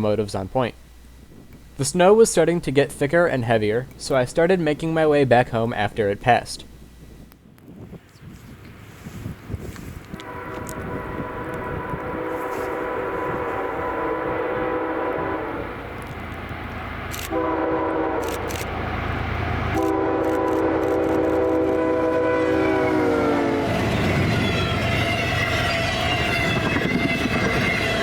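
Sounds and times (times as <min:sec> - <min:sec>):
train rumbling by: 0:08.7 - 0:28.0
locomotive air horn blasts: 0:10.1 - 0:15.8, 0:17.3 - 0:28.0.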